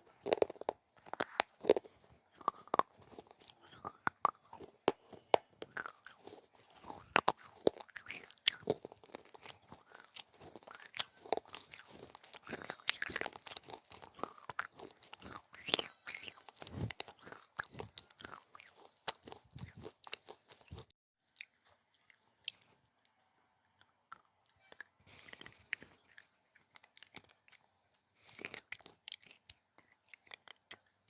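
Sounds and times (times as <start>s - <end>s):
crunching of brittle clay: 0.0s - 22.7s.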